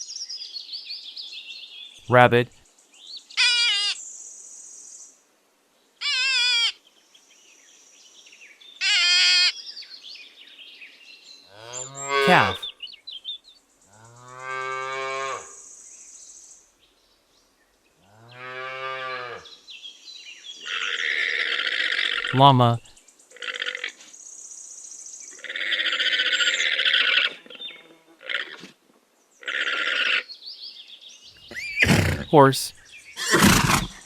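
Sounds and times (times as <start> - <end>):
high quavering cries: 31.5 - 32.5, 33.2 - 34.0.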